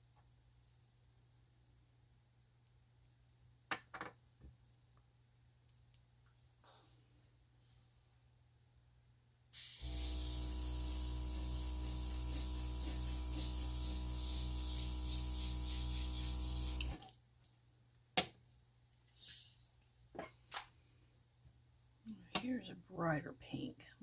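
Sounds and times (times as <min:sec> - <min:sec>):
air hissing from airbrush: 0:09.6 - 0:17.0
airbrush compressor humming: 0:09.6 - 0:17.0.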